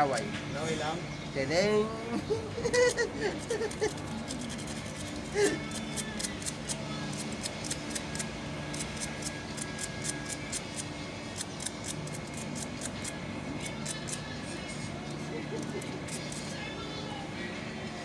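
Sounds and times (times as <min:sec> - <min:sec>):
quick light clicks and scraping: 0:03.7 - 0:10.8.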